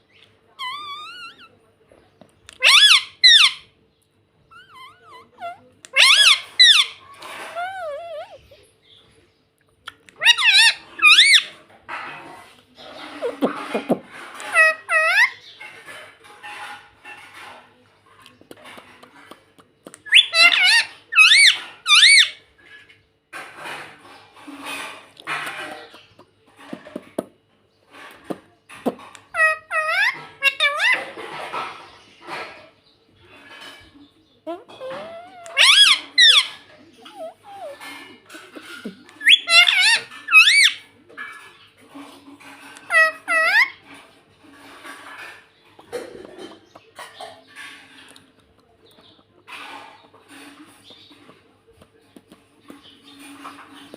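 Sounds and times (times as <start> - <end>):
parakeet chattering: 0.1 - 1.7, 2.5 - 3.7, 4.4 - 9.0, 9.9 - 17.7, 18.5 - 22.8, 28.1 - 51.4
parakeet squawking: 0.6 - 1.6, 2.5 - 3.7, 4.5 - 8.7, 10.1 - 11.6, 12.9 - 16.6, 20.0 - 22.4, 28.8 - 32.6, 34.4 - 41.4, 42.0 - 44.0.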